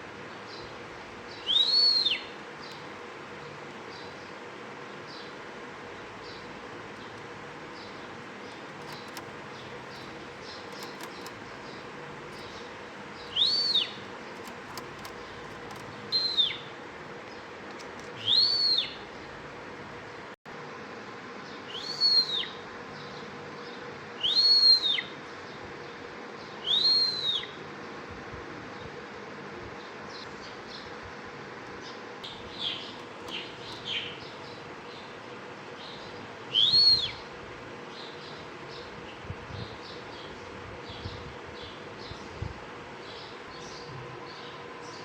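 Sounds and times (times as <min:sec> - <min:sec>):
faint steady hum: 0:00.0 - 0:45.0
lark whistling rising and falling: 0:01.4 - 0:02.3, 0:13.2 - 0:14.1, 0:16.1 - 0:16.7, 0:18.2 - 0:19.0, 0:21.7 - 0:22.6, 0:24.2 - 0:25.1, 0:26.6 - 0:27.6, 0:36.5 - 0:37.2.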